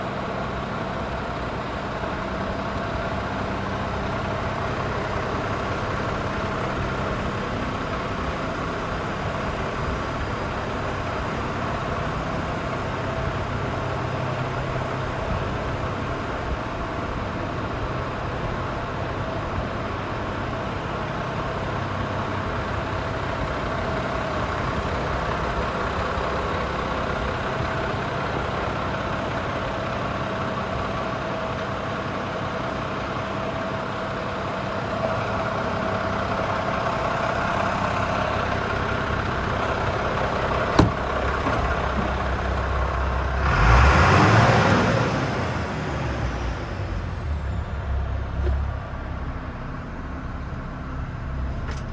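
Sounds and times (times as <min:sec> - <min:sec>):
truck diesel engine idling: 0:00.0 - 0:51.9.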